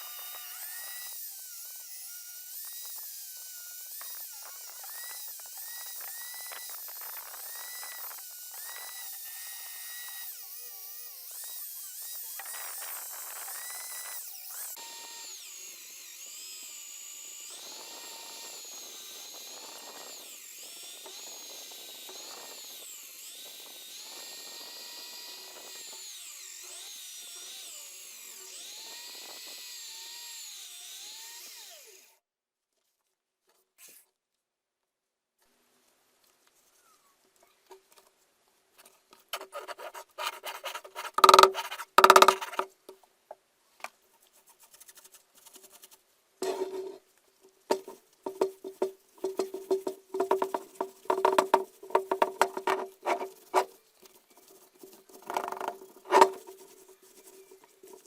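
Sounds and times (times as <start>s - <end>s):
electric hammer drill whining: 0.0s - 32.2s, 41.2s - 42.6s.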